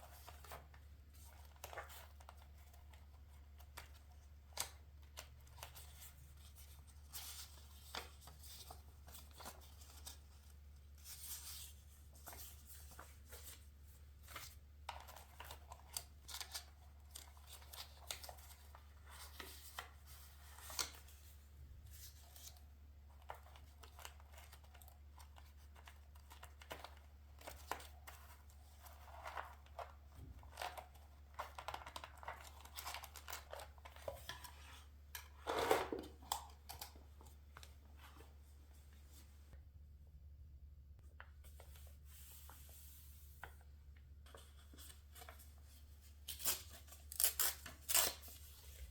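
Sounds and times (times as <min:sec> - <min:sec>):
paper handled and torn: 0:44.3 - 0:48.9
scissors snipping paper: 0:46.3 - 0:48.4.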